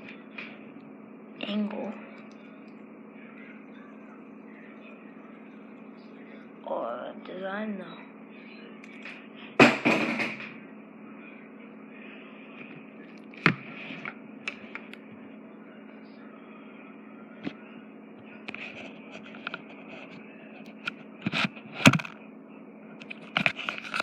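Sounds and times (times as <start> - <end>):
low hum: 0.0 - 24.0
handling knocks and clicks: 21.8 - 22.2.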